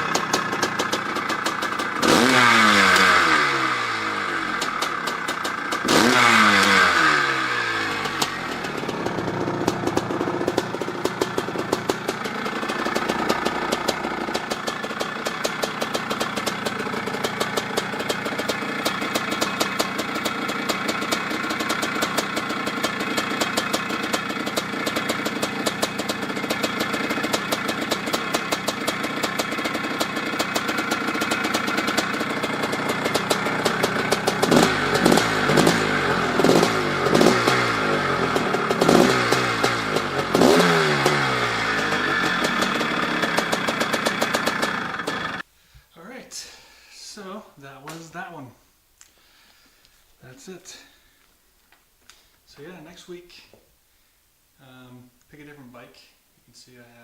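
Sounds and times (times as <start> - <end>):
dirt bike engine revving and idling: 0.0 - 45.5.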